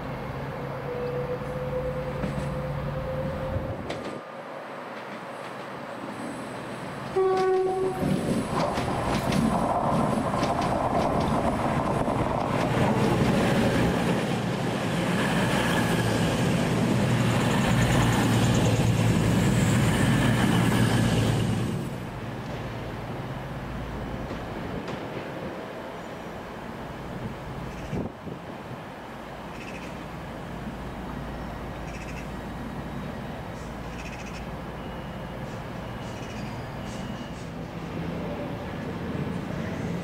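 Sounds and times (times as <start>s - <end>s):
train passing loudly: 0.0s - 40.0s
wheels clicking over rail joints: 7.0s - 13.5s
train horn blast: 7.1s - 8.1s.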